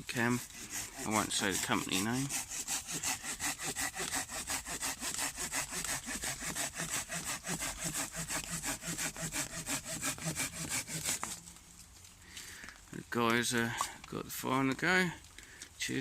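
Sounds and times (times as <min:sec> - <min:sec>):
hand saw cutting wood: 0:00.0 - 0:11.5.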